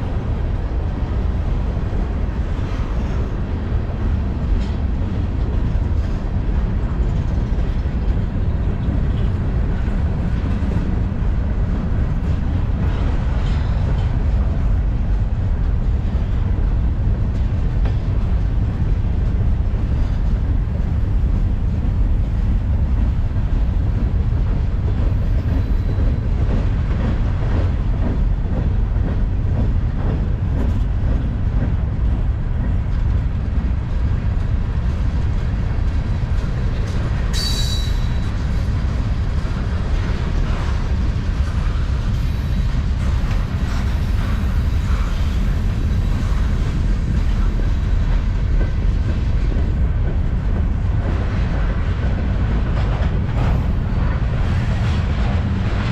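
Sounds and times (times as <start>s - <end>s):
freight train rumbling past: 0.0s - 55.9s
high-pitched wheel squeal: 37.3s - 38.3s.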